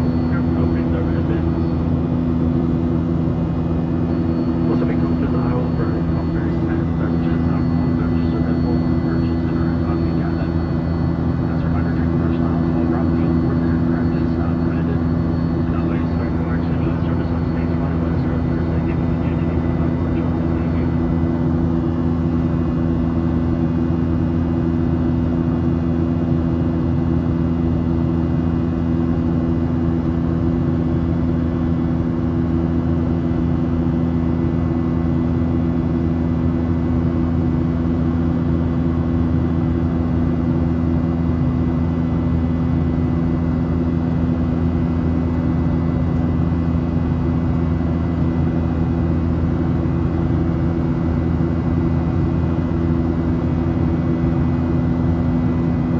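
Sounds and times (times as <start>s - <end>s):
airplane cabin drone: 0.0s - 55.9s.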